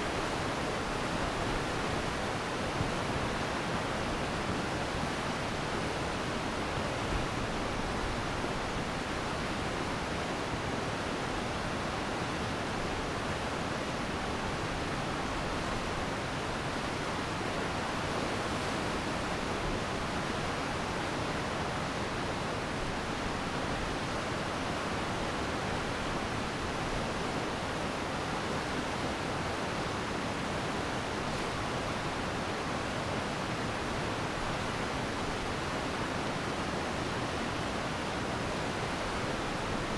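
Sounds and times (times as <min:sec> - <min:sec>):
stream rushing: 0:14.1 - 0:39.9.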